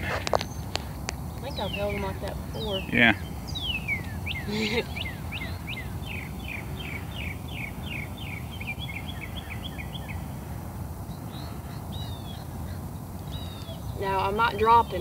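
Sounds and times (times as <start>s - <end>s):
songbird whistling: 0.0s - 10.3s, 11.1s - 15.0s
low background rumble: 0.0s - 15.0s.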